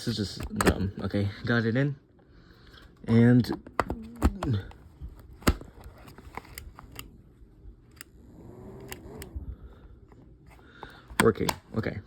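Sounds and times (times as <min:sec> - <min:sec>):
faint fan hum: 0:00.0 - 0:12.0
hard plastic clicks and knocks: 0:10.9 - 0:11.8.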